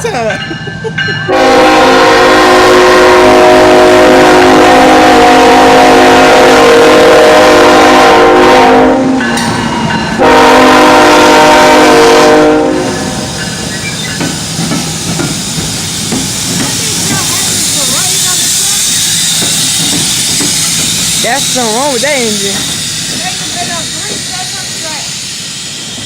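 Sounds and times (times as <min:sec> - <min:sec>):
rumble of passing train: 0:00.0 - 0:26.0
locomotive air horn blasts: 0:01.3 - 0:09.2, 0:10.2 - 0:13.0.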